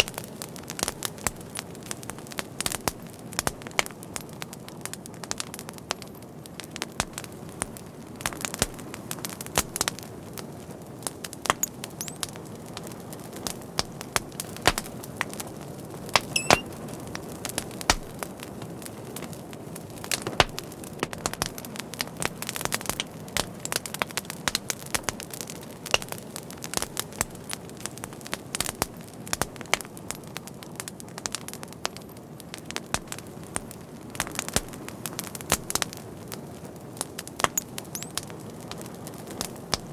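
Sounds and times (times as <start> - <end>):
wood fire crackling and popping: 0.0 - 39.9
faint whistle: 16.3 - 16.7.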